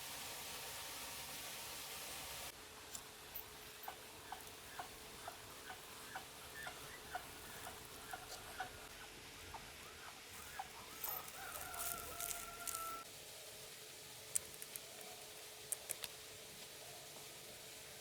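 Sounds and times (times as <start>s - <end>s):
chickens clucking: 3.9s - 8.9s
chicken long drawn-out call: 10.4s - 13.1s.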